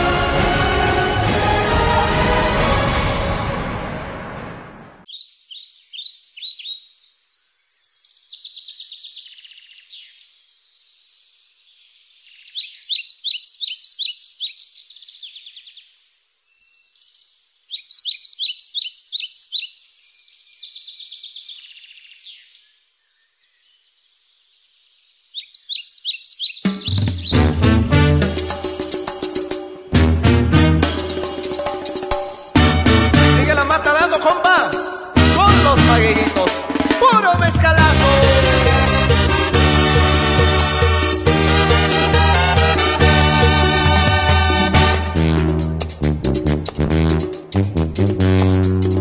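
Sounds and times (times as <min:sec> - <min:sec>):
band music: 0:00.0 - 0:04.7, 0:26.7 - 0:49.0
theme music: 0:00.0 - 0:05.1, 0:26.7 - 0:49.0
birds singing: 0:05.1 - 0:27.5.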